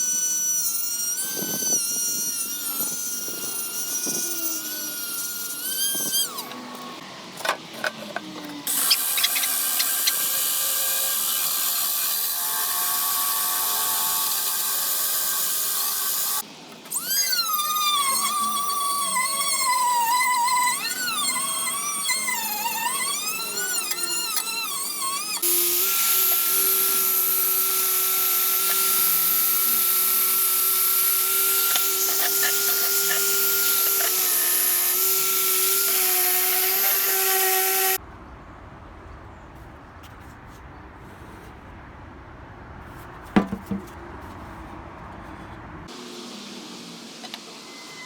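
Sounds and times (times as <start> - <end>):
small power tool whining: 0.0 - 38.0.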